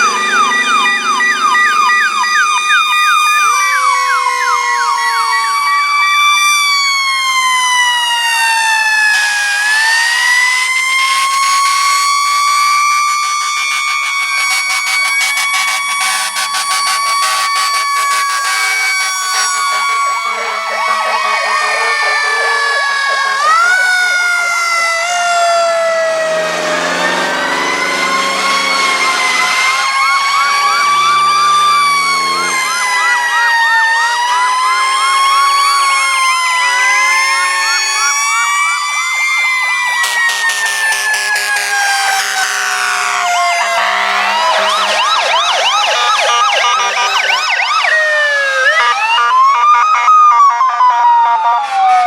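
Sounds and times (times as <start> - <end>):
fast warbling siren: 0.0 - 52.0
fire engine sirens wailing: 0.0 - 52.0
low horn: 26.1 - 38.2, 40.0 - 45.4.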